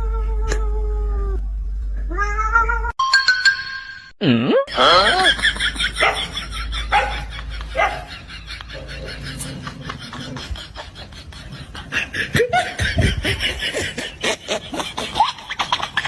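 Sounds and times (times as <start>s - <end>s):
person laughing and snickering: 4.2s - 16.0s.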